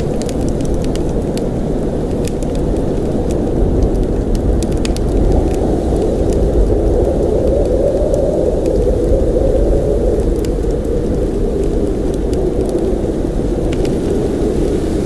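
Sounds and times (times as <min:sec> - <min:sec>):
blizzard wind blowing: 0:00.0 - 0:15.0
faint clicks and ticks: 0:00.0 - 0:15.0.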